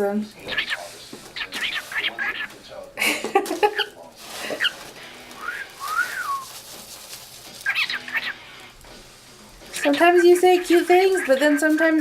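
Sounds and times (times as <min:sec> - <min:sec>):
cockatiel chattering: 0:00.4 - 0:02.6, 0:03.6 - 0:04.8, 0:07.6 - 0:08.7, 0:09.7 - 0:12.0.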